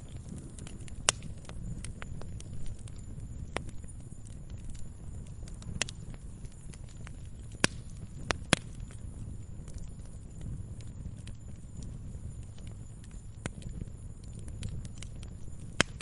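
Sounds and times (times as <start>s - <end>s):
burning wood crackling and popping: 0.0s - 16.0s
campfire rumble: 0.0s - 16.0s.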